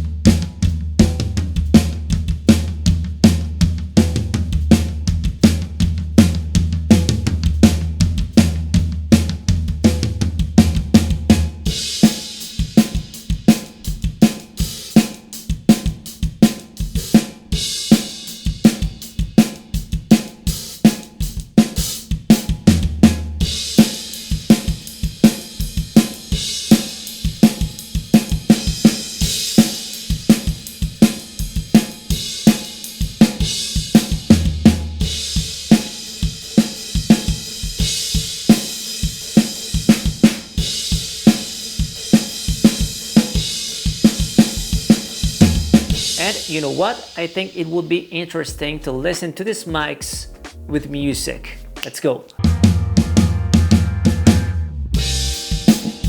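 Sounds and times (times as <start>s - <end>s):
hi-hat hits: 35.4s - 52.7s, 54.4s - 56.0s
kick drum: 49.7s - 51.1s
snare drum hits: 51.8s - 56.0s
low drum ringing: 52.4s - 56.0s.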